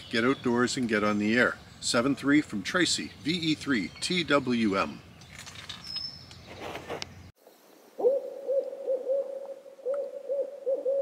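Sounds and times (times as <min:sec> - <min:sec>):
bird hooting: 0:08.0 - 0:11.0.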